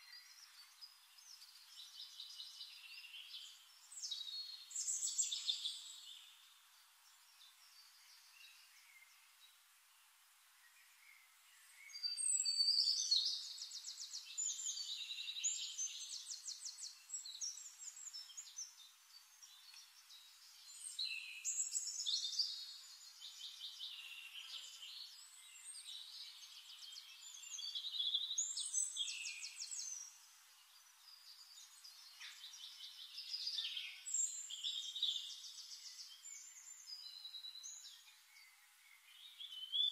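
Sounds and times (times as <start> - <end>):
songbirds trilling: 10.8 - 39.9.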